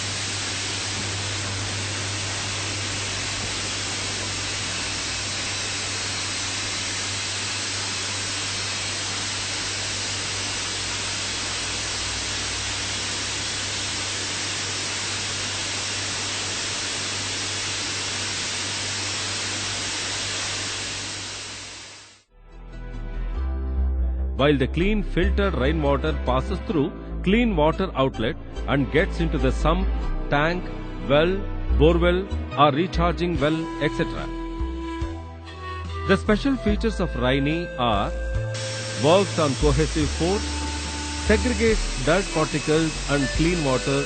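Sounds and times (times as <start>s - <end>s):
water pouring through filter: 38.6s - 43.4s.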